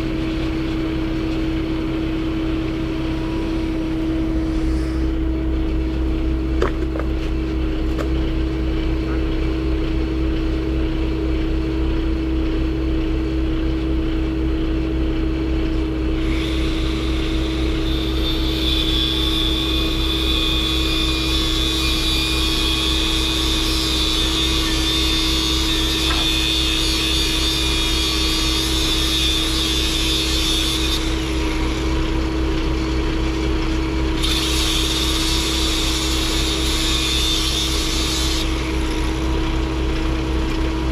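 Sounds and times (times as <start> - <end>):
machine droning hum: 0.0 - 40.9
hiss: 4.3 - 5.2.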